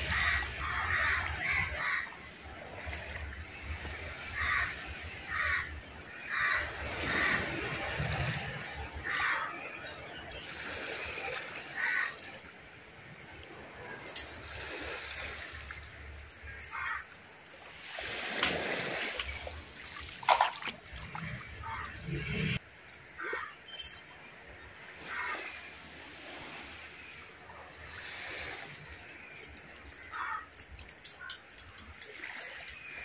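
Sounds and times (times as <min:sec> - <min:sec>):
water splashing and sloshing: 0:00.0 - 0:33.0
crows cawing: 0:00.1 - 0:02.2, 0:04.3 - 0:07.4, 0:11.8 - 0:12.2, 0:16.5 - 0:17.1, 0:30.0 - 0:30.6.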